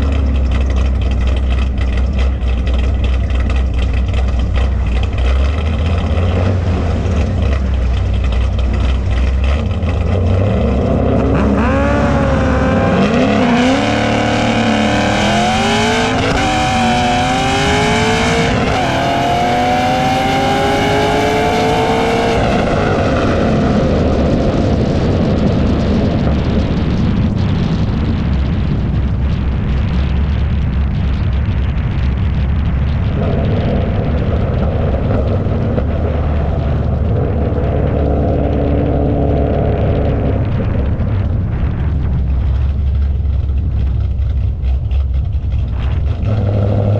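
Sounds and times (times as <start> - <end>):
drag racing car engine accelerating: 0.0 - 46.9.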